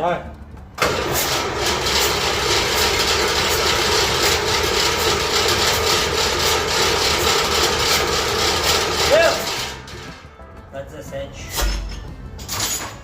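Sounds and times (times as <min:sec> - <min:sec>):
turbocharged engine running: 0:00.0 - 0:10.3.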